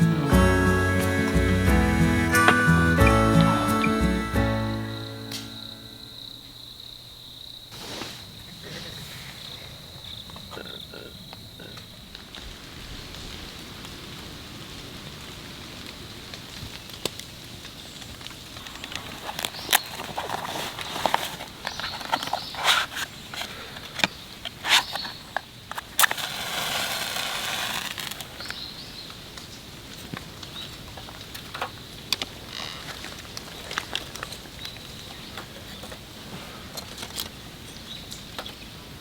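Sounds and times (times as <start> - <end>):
insect chirring: 4.7 - 8.7, 9.4 - 12.4
hiss: 7.7 - 9.8, 26.0 - 28.3.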